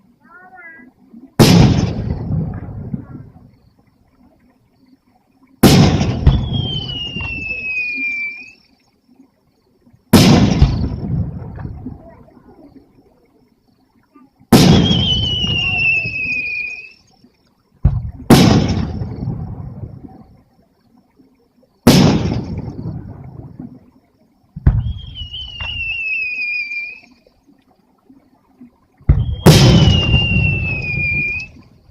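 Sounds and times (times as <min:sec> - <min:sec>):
firework crack: 0:01.4 - 0:02.7, 0:05.6 - 0:08.0, 0:10.1 - 0:11.5, 0:14.5 - 0:16.9, 0:17.8 - 0:19.5, 0:21.9 - 0:23.0, 0:29.1 - 0:31.6
fireworks booming: 0:01.4 - 0:03.2, 0:05.6 - 0:07.8, 0:10.1 - 0:11.8, 0:14.5 - 0:16.6, 0:17.8 - 0:19.9, 0:21.8 - 0:23.4, 0:24.6 - 0:26.3, 0:29.0 - 0:31.6
firework whistle: 0:05.7 - 0:08.7, 0:14.6 - 0:17.1, 0:24.7 - 0:27.2, 0:29.1 - 0:31.7.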